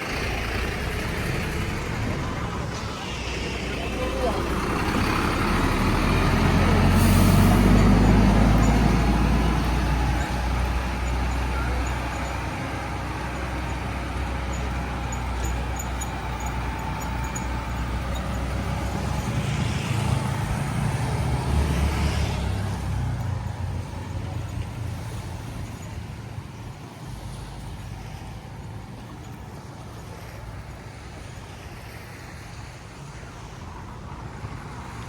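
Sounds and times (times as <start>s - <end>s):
vehicle passing on road: 0.0s - 26.4s.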